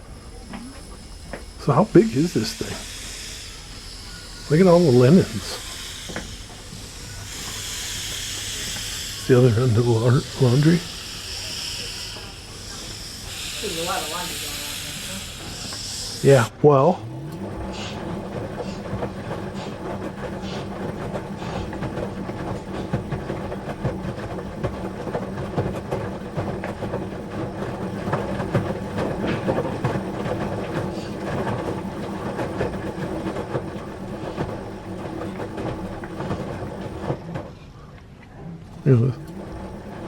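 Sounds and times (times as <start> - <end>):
low mechanical hum: 0.0 - 40.0.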